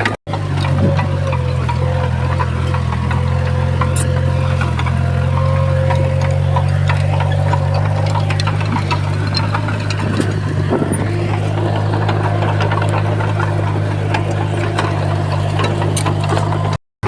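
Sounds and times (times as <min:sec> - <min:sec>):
bulldozer diesel engine running: 0:00.0 - 0:16.8
light clanks and clicks: 0:00.0 - 0:16.8.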